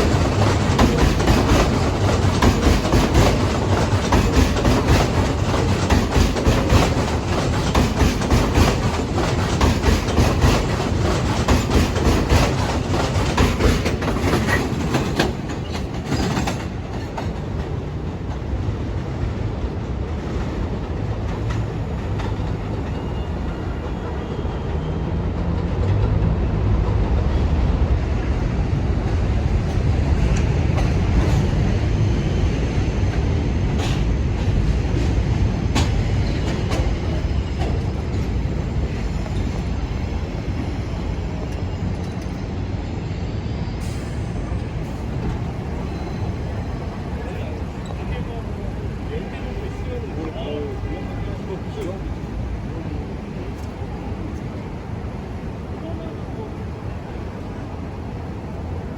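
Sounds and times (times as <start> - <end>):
train wheels clattering over joints: 0.0 - 18.5, 33.1 - 42.4, 43.8 - 55.7
subway train rumble: 0.0 - 58.9.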